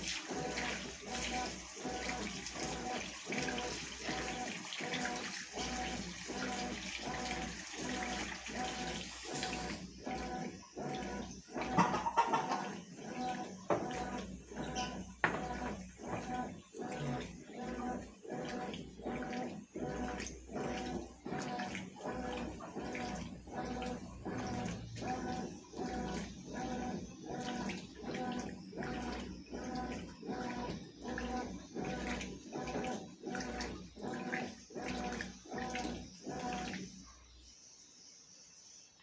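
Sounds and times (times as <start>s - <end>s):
washing machine agitating: 0.0s - 37.8s
water sloshing: 10.9s - 12.8s.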